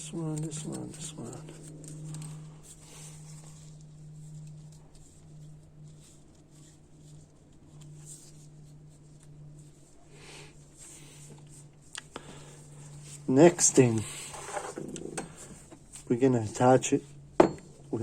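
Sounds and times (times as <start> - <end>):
rustling and ticking of small parts: 0.0 - 9.9
low hum: 0.0 - 18.0.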